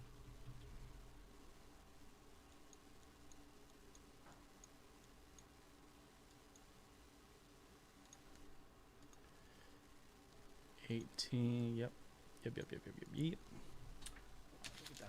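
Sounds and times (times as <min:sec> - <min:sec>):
light sharp ticks: 0:02.4 - 0:05.6, 0:08.0 - 0:09.3.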